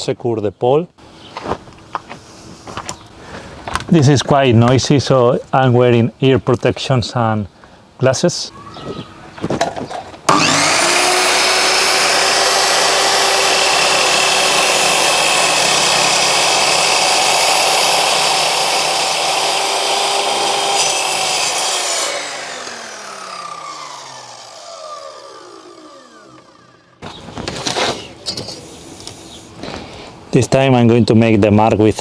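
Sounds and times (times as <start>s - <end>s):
mitre saw cutting wood: 10.3s - 27.0s
saw blade winding down: 10.3s - 27.0s.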